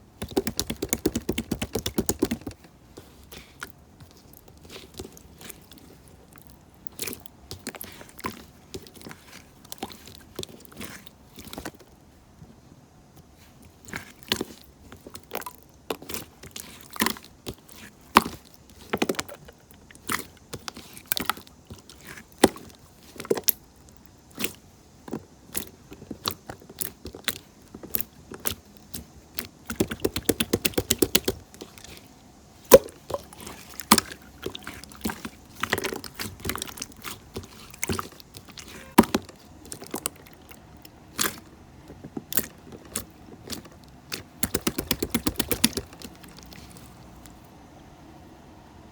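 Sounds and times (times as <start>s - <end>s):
sharp clicks and taps: 44.4s - 46.1s.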